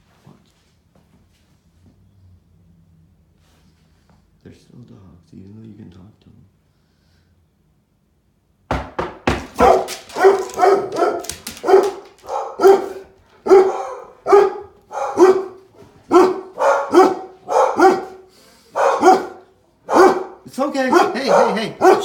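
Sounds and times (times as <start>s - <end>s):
knocks on a door: 8.7s - 9.9s
dog barking: 9.5s - 22.0s.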